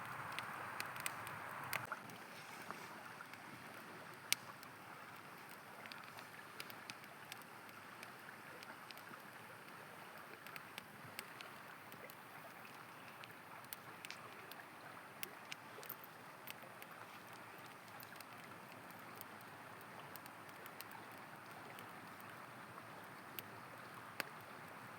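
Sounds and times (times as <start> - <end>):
campfire crackling: 0.0 - 24.9
river water flowing: 0.0 - 24.9.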